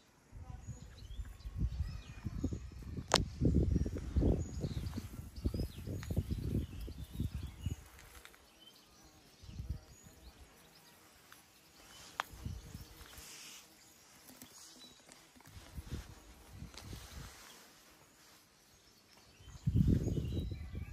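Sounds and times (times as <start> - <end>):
faint bird chirps: 0.0 - 20.9.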